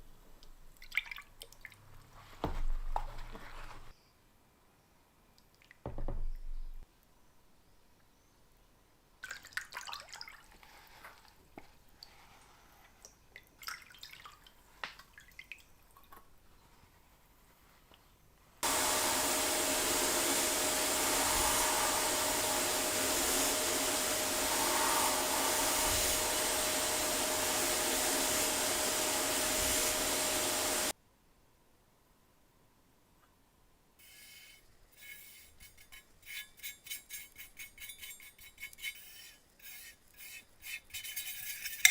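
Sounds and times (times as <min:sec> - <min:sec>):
workshop appliance motor hissing: 0:18.6 - 0:30.9
small parts clicking and scraping: 0:34.0 - 0:41.9.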